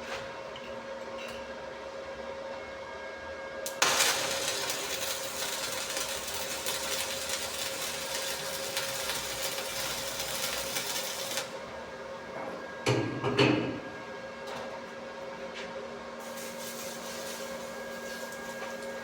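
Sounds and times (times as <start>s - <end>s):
arc welding crackling hiss: 3.6s - 11.6s, 16.2s - 19.0s.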